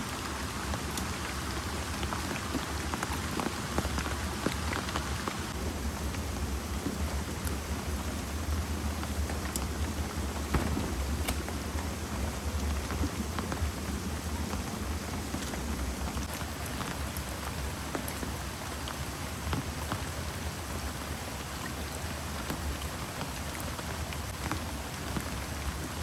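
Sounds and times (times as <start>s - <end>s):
heavy rain pouring: 0.0s - 26.0s
sharp raindrop hits: 0.2s - 17.3s.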